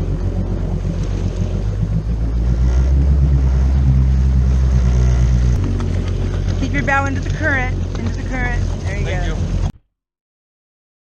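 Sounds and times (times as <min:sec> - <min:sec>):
jet ski engine revving: 0:00.0 - 0:09.8.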